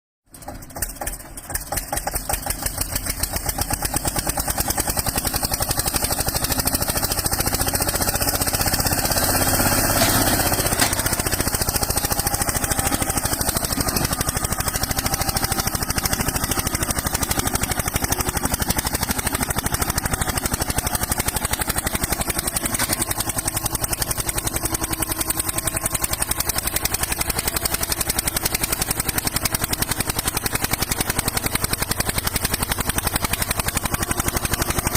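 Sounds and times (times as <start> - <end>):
tractor diesel engine running: 0.3 - 34.9.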